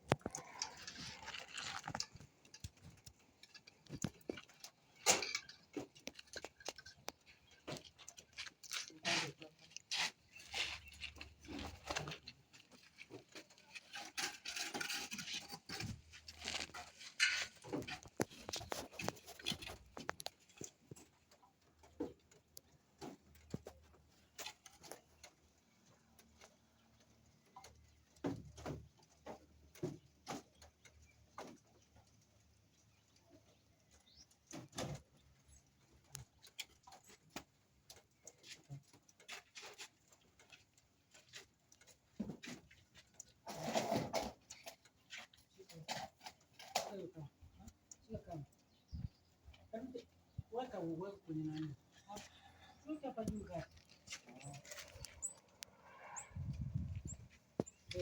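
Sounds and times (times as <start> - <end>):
scraping and clatter: 0.0 - 22.0, 36.1 - 47.4.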